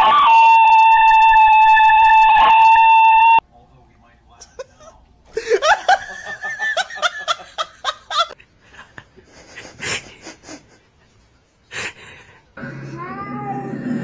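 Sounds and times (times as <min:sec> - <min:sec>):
person laughing: 0:04.5 - 0:10.8.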